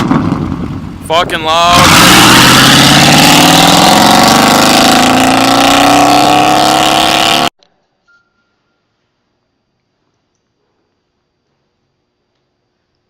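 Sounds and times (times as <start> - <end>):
truck engine revving loud exhaust: 1.6 - 7.5.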